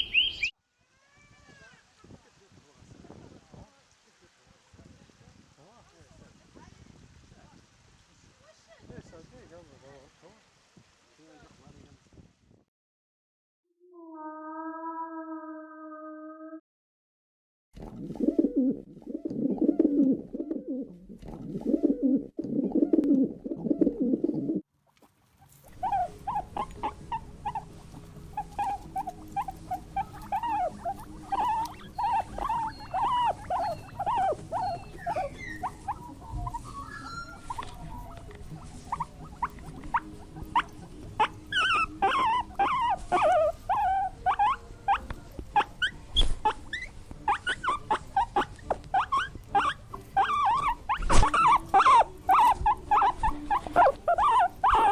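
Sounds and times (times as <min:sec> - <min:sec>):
low pulsing animal call: 0:14.0 - 0:16.6, 0:25.7 - 0:54.9
rapid high squeaks and chirps: 0:25.6 - 0:45.0, 0:45.6 - 0:54.9.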